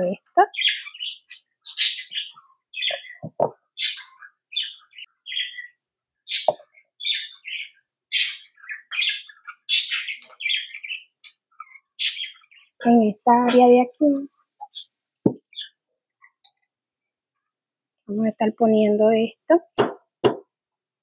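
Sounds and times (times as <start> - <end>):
small bird chirping: 0.0 - 16.8.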